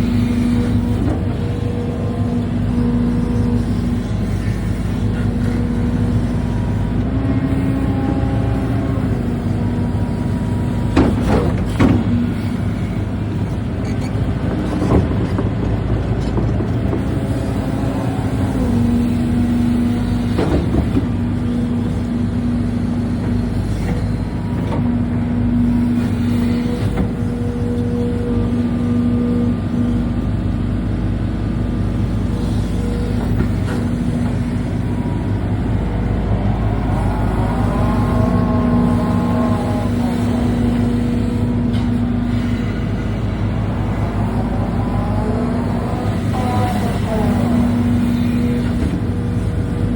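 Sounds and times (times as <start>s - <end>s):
excavator engine running: 0.0s - 49.9s
whine rising and falling in pitch: 34.7s - 48.6s.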